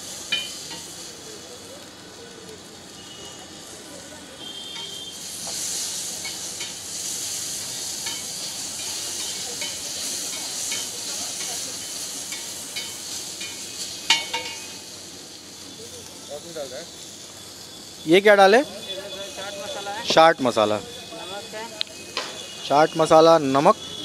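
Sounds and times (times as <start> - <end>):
chicken sizzling on a griddle: 0.0 - 24.0
metal spatula scraping griddle: 4.8 - 14.8.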